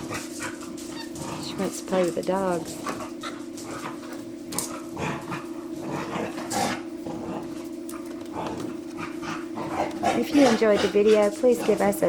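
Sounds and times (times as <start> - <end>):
dog play growls and huffs: 0.0 - 1.6, 2.8 - 7.6, 8.3 - 11.9.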